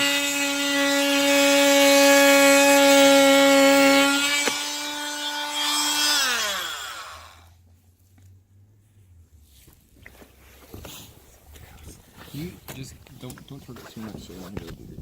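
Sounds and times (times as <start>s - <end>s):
power tool whining: 0.0s - 7.6s.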